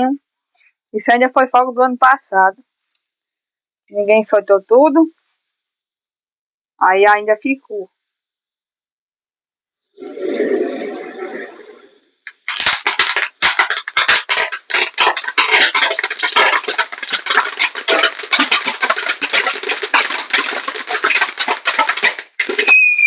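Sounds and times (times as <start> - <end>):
firecrackers crackling: 10.0 - 23.0.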